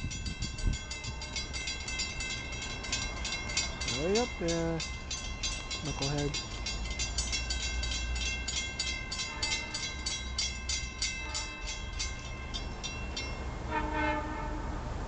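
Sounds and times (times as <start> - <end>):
railroad crossing bell ringing: 0.0 - 14.6
train horn blast: 9.2 - 9.9, 11.2 - 11.7, 13.6 - 14.9.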